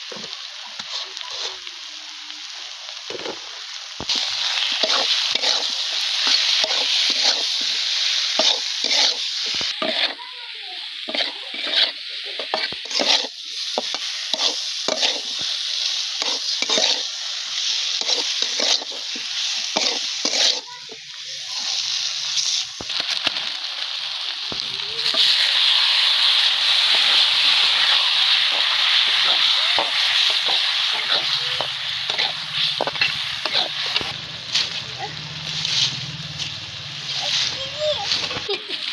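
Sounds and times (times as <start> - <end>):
food sizzling in hot oil: 0.0 - 38.9
spatula scraping a pan: 0.8 - 1.6, 4.7 - 7.8, 8.4 - 10.3, 11.0 - 15.4, 16.2 - 17.1, 18.0 - 21.0, 26.8 - 34.8.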